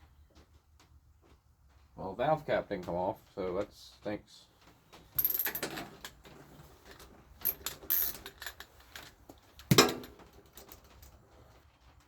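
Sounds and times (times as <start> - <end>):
metal tool clatter: 5.2 - 11.2.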